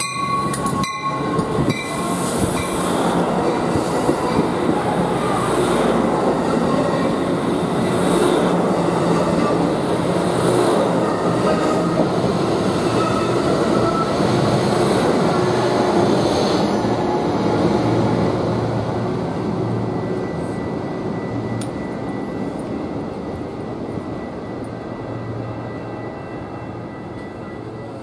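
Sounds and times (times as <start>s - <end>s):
train wheels rumbling: 0.0s - 28.0s
faint steady high tone: 23.3s - 28.0s.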